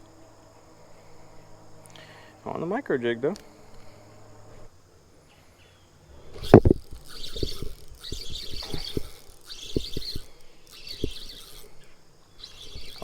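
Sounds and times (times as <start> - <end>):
bird chirping: 5.2 - 13.0.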